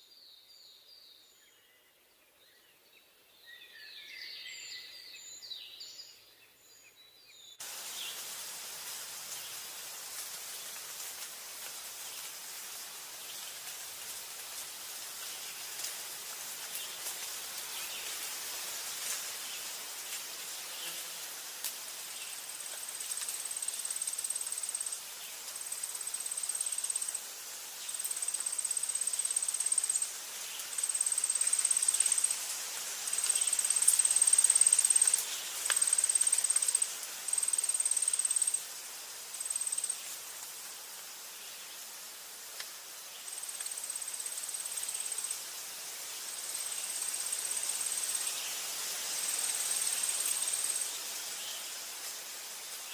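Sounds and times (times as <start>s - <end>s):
soft forest hiss: 0.0s - 52.9s
insect trilling: 22.4s - 25.0s, 25.7s - 27.2s, 27.9s - 32.4s, 33.1s - 40.1s, 43.3s - 45.4s, 49.2s - 51.6s.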